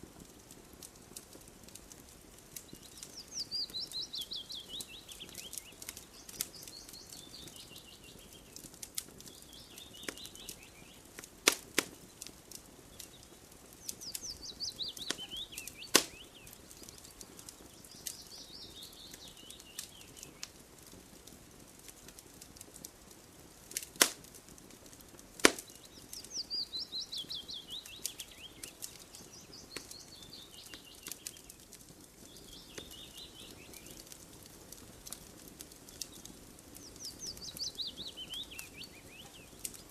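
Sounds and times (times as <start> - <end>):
wood fire crackling and popping: 0.0 - 39.9
songbird singing: 2.5 - 11.3, 11.9 - 20.6, 25.5 - 34.2, 35.0 - 39.9.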